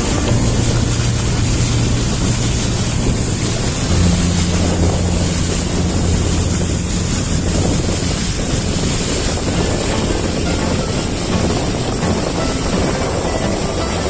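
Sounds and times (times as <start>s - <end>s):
motorboat engine drone: 0.0s - 14.0s
rushing water: 0.0s - 14.0s
wind buffeting microphone: 0.0s - 14.0s.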